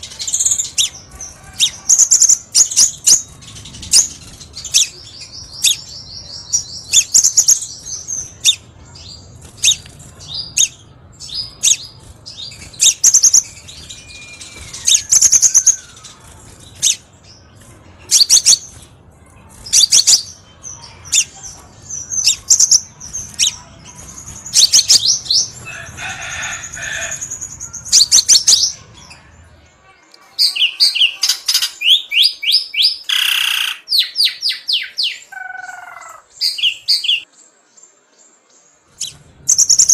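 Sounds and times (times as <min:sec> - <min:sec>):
bird chirps and trills: 0:00.0 - 0:29.6, 0:38.6 - 0:39.9.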